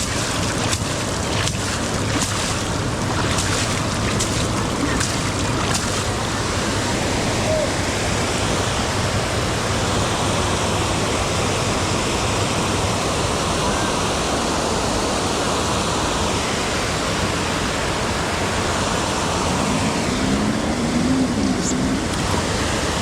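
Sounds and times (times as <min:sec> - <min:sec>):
rain on microphone: 0:00.0 - 0:12.0, 0:19.0 - 0:23.0.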